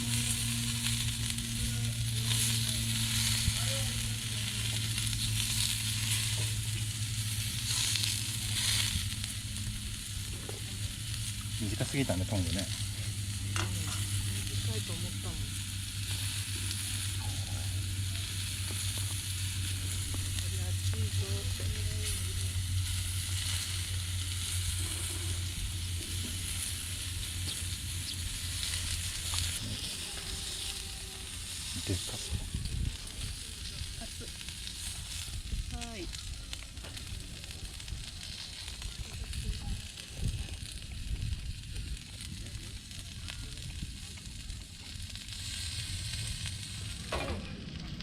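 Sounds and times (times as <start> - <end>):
meat sizzling on grill plate: 0.0 - 47.2
low steady hum: 0.0 - 48.0.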